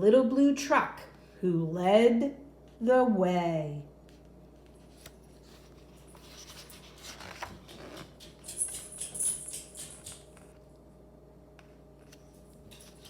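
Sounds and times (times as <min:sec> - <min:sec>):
paper book pages rustling: 0:04.1 - 0:08.2.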